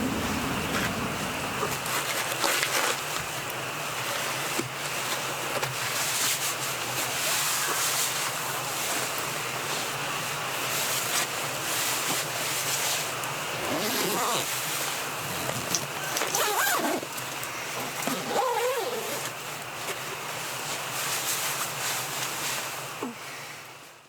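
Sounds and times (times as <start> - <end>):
wind rushing through trees: 0.0 - 2.0.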